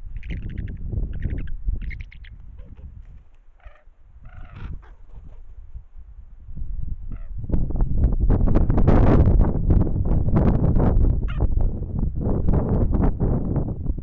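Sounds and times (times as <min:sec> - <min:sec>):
wind noise on microphone: 0:00.0 - 0:14.0
eagles chattering calls: 0:00.1 - 0:05.0.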